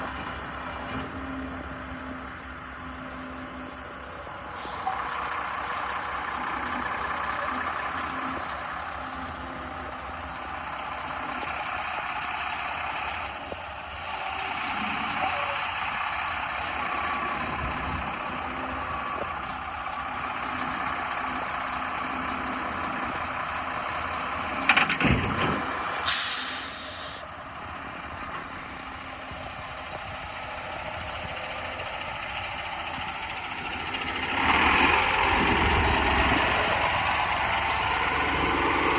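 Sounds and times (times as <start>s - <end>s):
dump truck engine running: 0.0s - 38.9s
air brake hiss: 4.5s - 5.0s, 25.9s - 27.3s.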